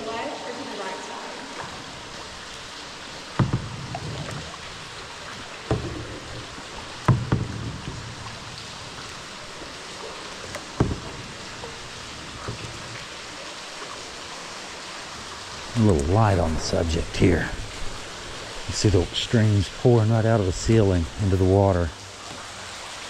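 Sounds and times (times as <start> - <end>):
water pouring and splashing: 0.0 - 23.0
paddle knocking kayak hull: 1.6 - 19.2.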